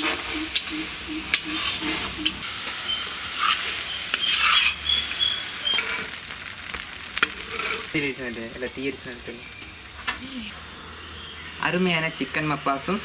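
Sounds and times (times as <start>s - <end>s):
chicken sizzling in a pan: 0.0s - 10.6s
spoon scraping a pan: 1.3s - 6.4s, 7.2s - 8.3s.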